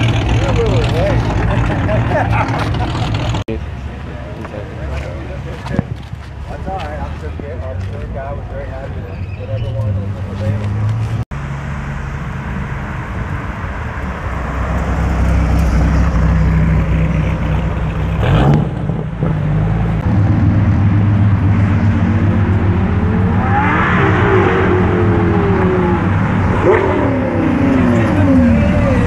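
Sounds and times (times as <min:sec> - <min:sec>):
sports car engines running: 0:00.0 - 0:09.0.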